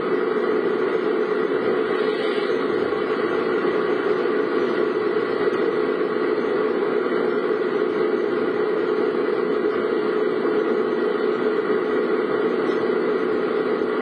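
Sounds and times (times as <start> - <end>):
car engine: 0.0 - 14.0
road hiss: 1.7 - 4.3.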